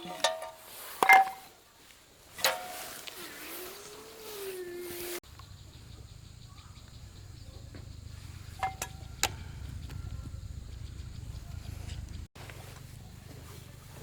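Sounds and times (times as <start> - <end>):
low steady rumble: 5.2 - 14.0.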